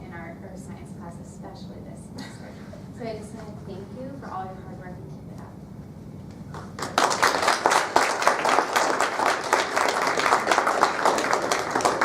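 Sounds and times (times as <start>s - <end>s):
people clapping: 6.4s - 12.0s.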